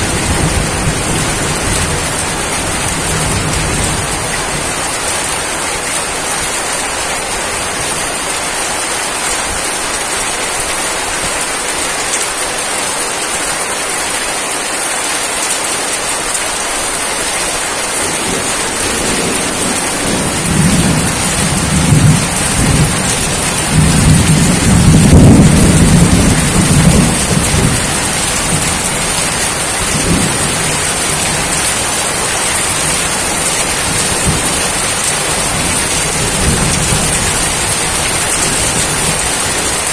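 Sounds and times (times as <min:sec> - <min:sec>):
rain falling: 0:00.0 - 0:39.9
thunder rumble: 0:18.0 - 0:39.9.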